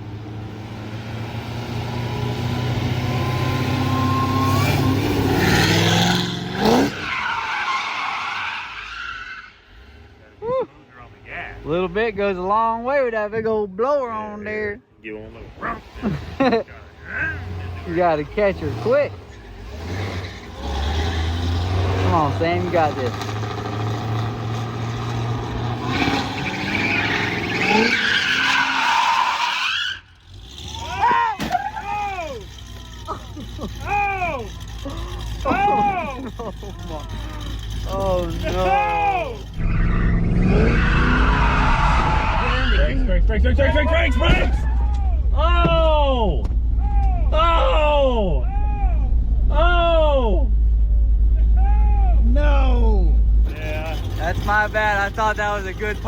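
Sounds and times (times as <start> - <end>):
car engine under throttle: 0.0 - 7.0, 15.6 - 29.3, 30.0 - 49.7, 52.2 - 56.0
tires squealing in a drift: 2.0 - 10.2, 15.6 - 45.8, 53.5 - 56.0.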